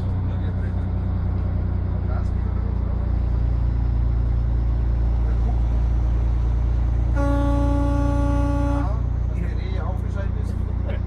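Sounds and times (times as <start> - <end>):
truck diesel engine droning: 0.0 - 11.0
vehicle horn: 7.1 - 9.1.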